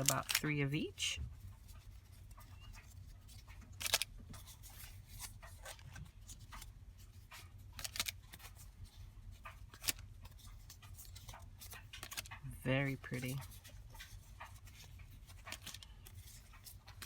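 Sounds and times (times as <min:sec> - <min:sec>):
low room hum: 0:00.0 - 0:17.0
stiff paper rustling: 0:00.0 - 0:17.0.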